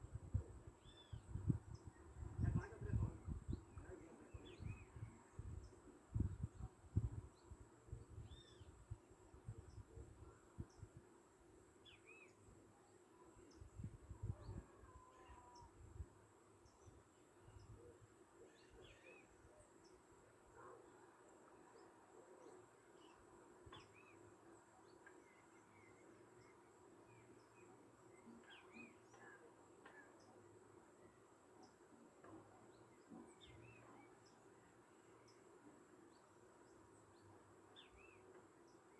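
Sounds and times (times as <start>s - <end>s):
wind rumble on microphone: 0.0s - 11.0s, 13.6s - 15.0s.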